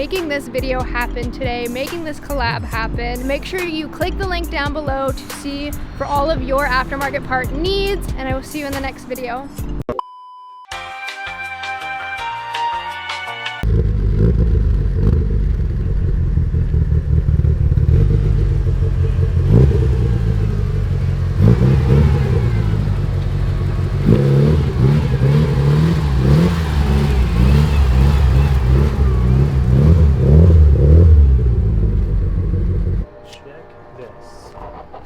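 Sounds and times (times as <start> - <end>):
car engine revving: 13.6 - 33.1.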